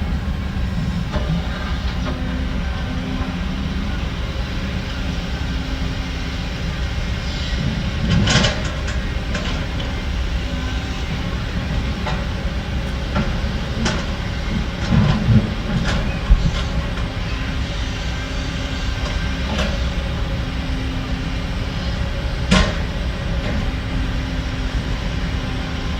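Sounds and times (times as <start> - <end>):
diesel construction machinery running: 0.0 - 25.9.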